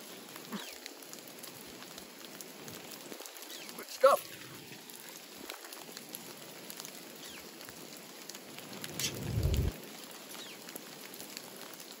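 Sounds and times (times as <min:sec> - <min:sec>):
rain pattering: 0:00.0 - 0:12.0
low rumble: 0:08.6 - 0:09.8.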